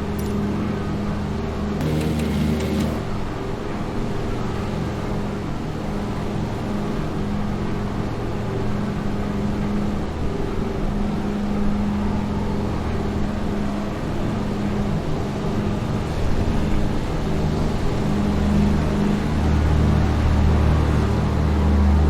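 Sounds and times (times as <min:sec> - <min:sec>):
piston aircraft engines droning: 0:00.0 - 0:22.0
low hum tone: 0:01.8 - 0:03.2.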